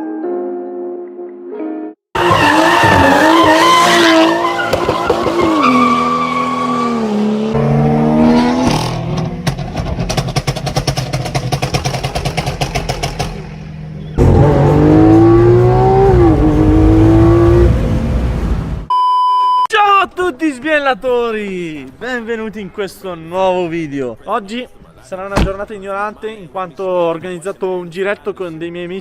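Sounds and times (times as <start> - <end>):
tyres squealing: 2.2 - 7.1
car engine revving: 2.2 - 18.9.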